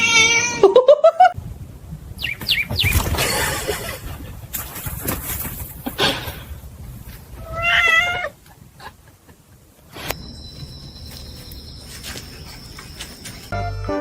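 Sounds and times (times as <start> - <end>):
cat meowing: 0.0 - 0.6, 7.4 - 8.4
faint high-pitched tone: 10.2 - 13.5.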